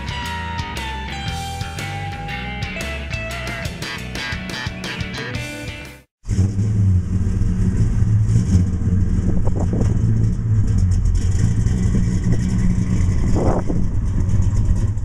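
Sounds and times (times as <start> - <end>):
vee eight engine running: 6.2 - 15.0.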